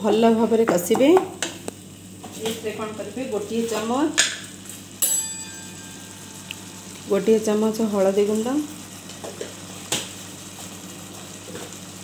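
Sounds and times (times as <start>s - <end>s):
faint sizzle: 0.0s - 12.0s
sharp metallic clink: 5.0s - 6.6s.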